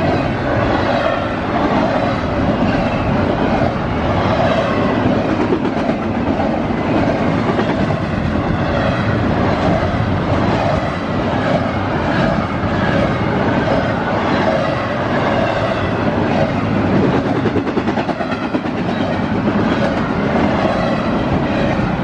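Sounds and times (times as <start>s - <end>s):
freight train passing: 0.0s - 22.0s
wheels clacking on rail: 0.0s - 22.0s.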